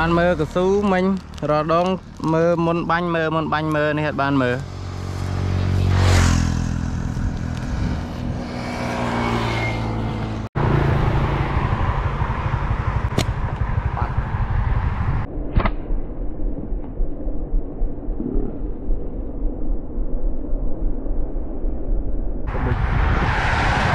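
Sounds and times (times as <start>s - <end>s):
low rumbling noise: 0.0s - 23.9s
vehicle engine running: 9.9s - 15.3s.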